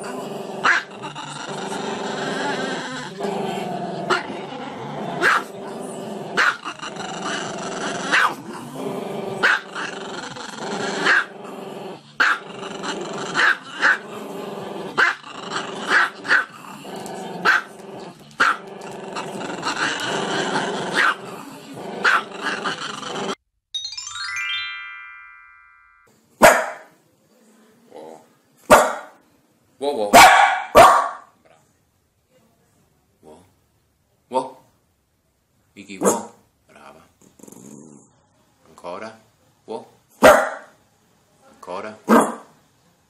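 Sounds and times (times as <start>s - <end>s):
dog grumbling: 0.0s - 23.4s, 37.3s - 38.1s
dog barking: 5.2s - 5.5s, 8.1s - 8.4s, 12.2s - 12.4s, 17.4s - 17.7s, 21.0s - 21.2s, 22.0s - 22.3s, 26.4s - 26.9s, 28.7s - 29.2s, 30.1s - 31.3s, 36.0s - 36.4s, 40.2s - 40.8s, 42.1s - 42.5s.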